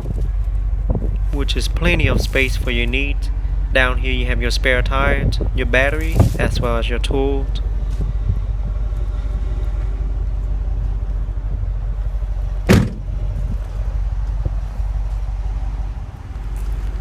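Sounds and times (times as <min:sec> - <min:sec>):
steady low rumble: 0:00.0 - 0:17.0
car trunk lid thump: 0:12.7 - 0:13.0.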